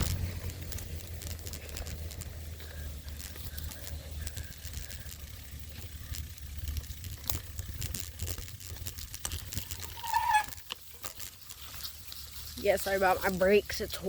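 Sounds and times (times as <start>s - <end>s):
bike clicks and rattles: 0.0s - 14.0s
bike rolling over rough ground: 0.0s - 14.0s
bike brakes squealing: 9.6s - 10.7s.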